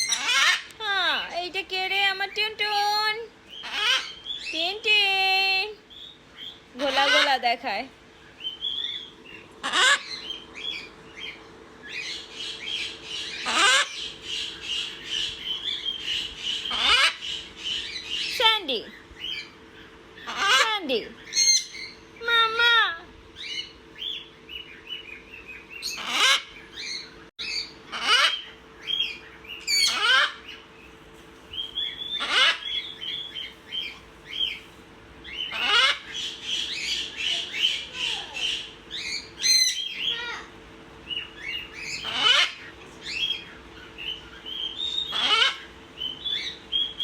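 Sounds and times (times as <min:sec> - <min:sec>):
parrot loud squawk: 0:00.0 - 0:00.8, 0:03.6 - 0:04.5, 0:06.8 - 0:07.5, 0:08.7 - 0:11.3, 0:12.0 - 0:18.3, 0:20.2 - 0:22.0, 0:25.8 - 0:30.6, 0:32.0 - 0:34.6, 0:35.3 - 0:40.5, 0:41.4 - 0:46.6
parrots chattering and whistling: 0:00.0 - 0:01.4, 0:02.0 - 0:47.0.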